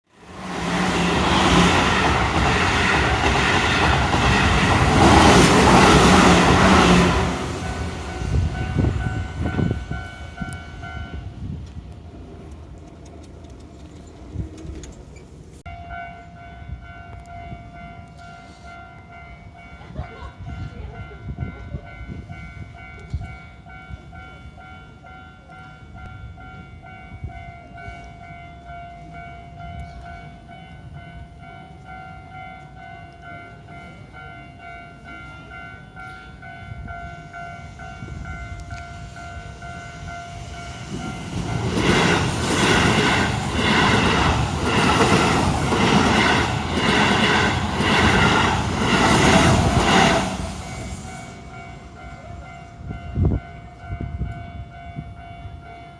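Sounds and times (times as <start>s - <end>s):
electric train passing: 0.1s - 55.9s
level crossing warning bell: 0.2s - 11.4s, 15.6s - 55.9s.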